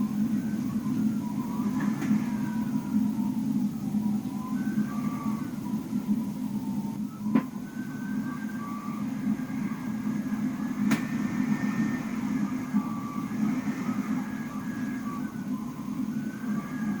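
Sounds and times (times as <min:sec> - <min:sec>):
blizzard wind blowing: 0:07.7 - 0:17.0.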